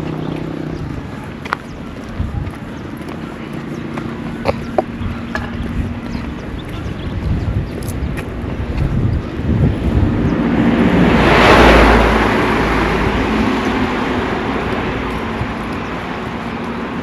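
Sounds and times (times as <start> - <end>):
vehicle driving past: 8.5 - 17.0.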